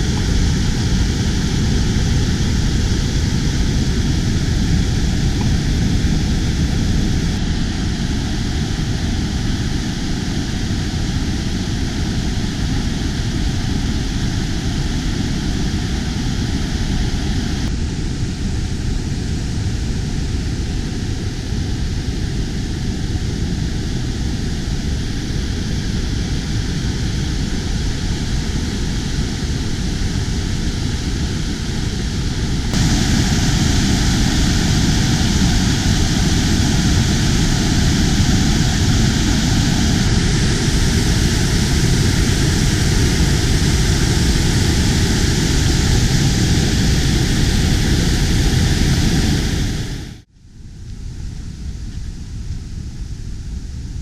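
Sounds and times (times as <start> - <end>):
loud rushing noise: 0.0 - 10.8, 27.4 - 50.3.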